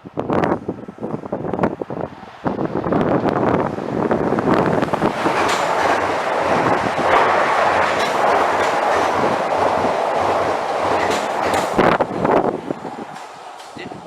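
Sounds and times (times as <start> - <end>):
train wheels rushing on rail: 0.2 - 14.0
wheels clacking over rail joints: 3.9 - 14.0.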